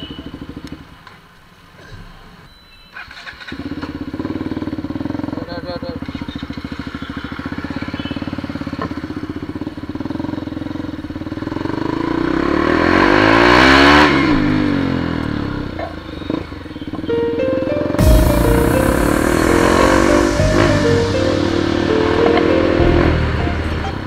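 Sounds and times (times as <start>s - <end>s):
motorcycle engine idling and revving: 0.0s - 1.8s, 3.0s - 17.1s.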